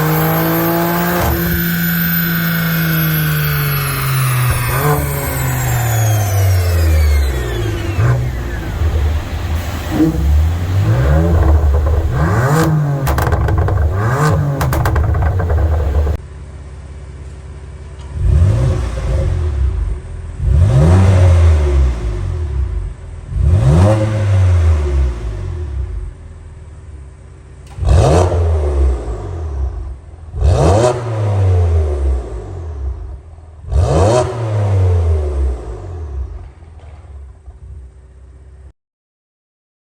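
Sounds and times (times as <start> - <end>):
car engine revving: 0.0 - 16.2, 18.2 - 25.8, 27.8 - 36.5
exhaust crackles and pops: 0.0 - 16.2.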